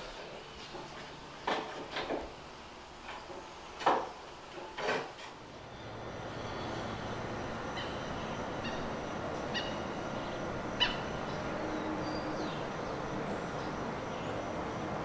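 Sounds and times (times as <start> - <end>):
open country ambient hiss: 0.0 - 15.0
bird chirping: 7.6 - 14.4.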